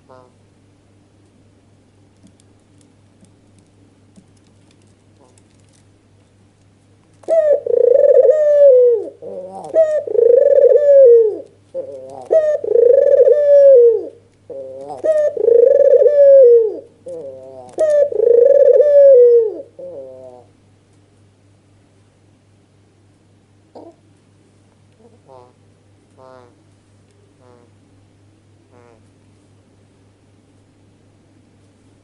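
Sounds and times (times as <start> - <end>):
dove cooing: 7.2 - 20.6, 23.7 - 24.0, 25.0 - 25.6, 27.4 - 27.8, 28.7 - 29.1.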